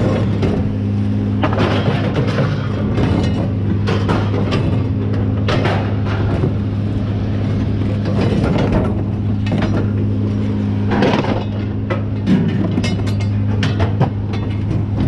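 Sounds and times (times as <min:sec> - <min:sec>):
engine running: 0:00.0 - 0:15.0
scrap metal clanking: 0:01.4 - 0:06.6.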